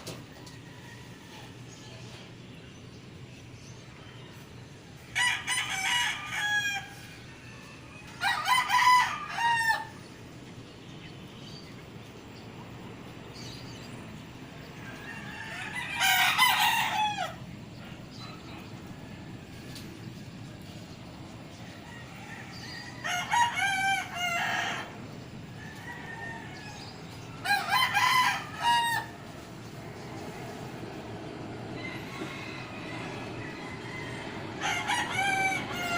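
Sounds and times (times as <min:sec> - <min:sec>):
low background hum: 0:00.0 - 0:35.9
rooster crowing: 0:04.0 - 0:10.1, 0:14.7 - 0:17.4, 0:21.6 - 0:35.9.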